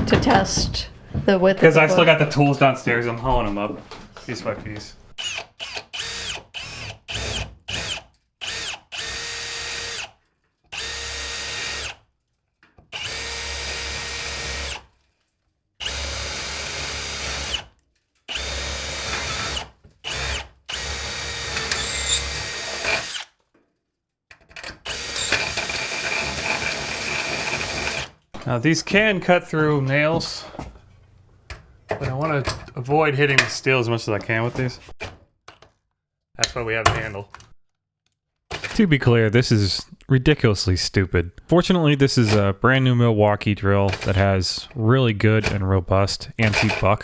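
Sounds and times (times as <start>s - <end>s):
cordless drill motor whining: 5.1s - 12.0s, 13.0s - 14.8s, 15.8s - 17.6s, 18.3s - 23.3s, 24.8s - 28.1s.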